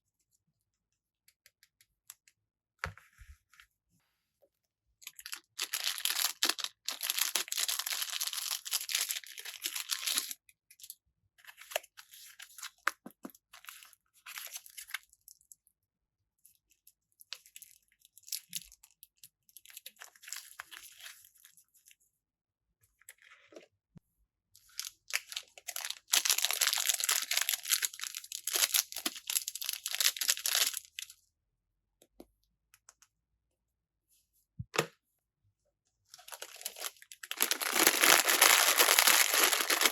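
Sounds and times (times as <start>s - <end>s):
packaging bags crinkling: 5.2s - 10.3s, 25.1s - 31.0s, 36.2s - 39.9s.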